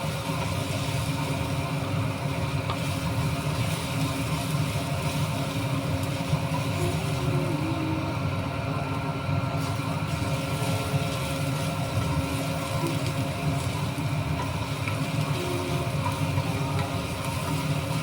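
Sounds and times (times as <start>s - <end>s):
low mechanical hum: 0.0s - 18.0s
faint steady tones: 10.2s - 18.0s.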